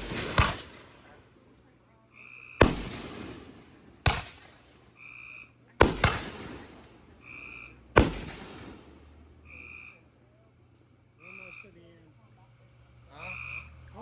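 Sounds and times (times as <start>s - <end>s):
fireworks bangs with echo: 0.0s - 1.3s, 2.6s - 4.9s, 5.8s - 9.2s.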